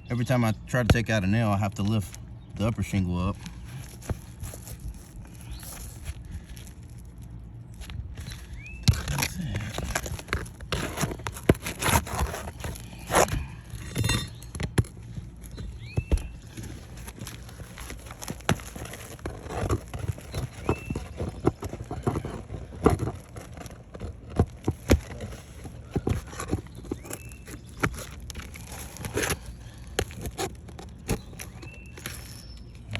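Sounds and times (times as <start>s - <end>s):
pry bar scraping on shingles: 0.1s - 32.9s.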